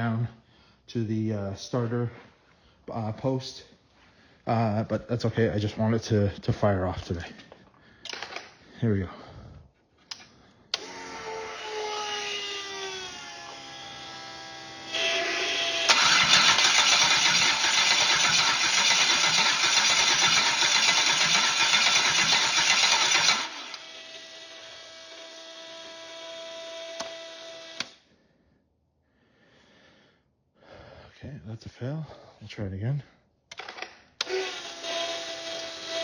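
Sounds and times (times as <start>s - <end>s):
engine cranking by starter: 15.2s - 23.8s.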